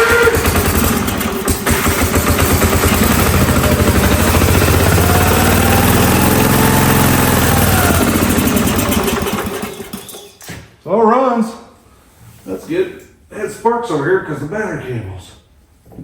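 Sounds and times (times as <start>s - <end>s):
pressure washer engine running: 0.0s - 10.1s.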